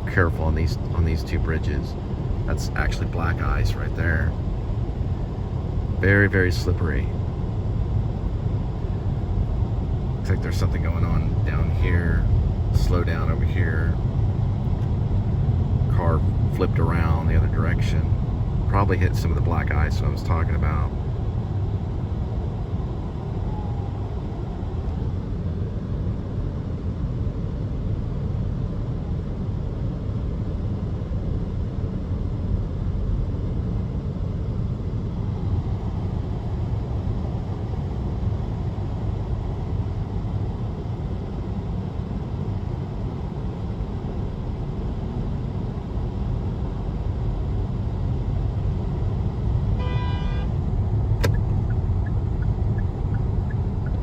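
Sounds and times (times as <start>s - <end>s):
car road rumble inside cabin: 0.0s - 26.3s, 35.2s - 54.0s
car horn pulses: 49.8s - 50.6s.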